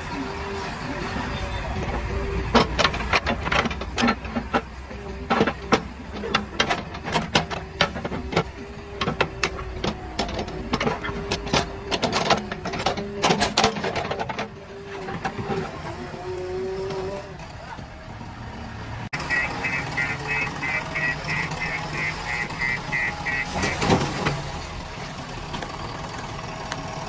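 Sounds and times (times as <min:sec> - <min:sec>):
diesel engine running: 0:00.0 - 0:27.0
clatter of knocks and rattles: 0:01.8 - 0:15.7.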